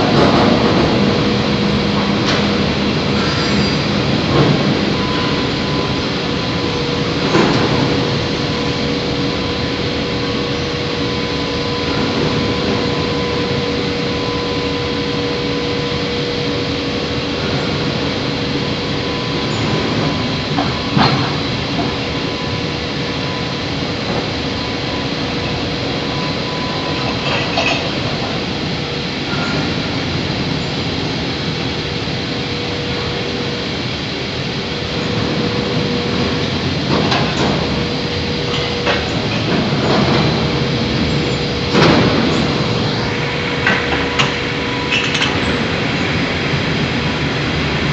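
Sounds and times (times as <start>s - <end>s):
crane mechanical hum: 0.0s - 47.9s.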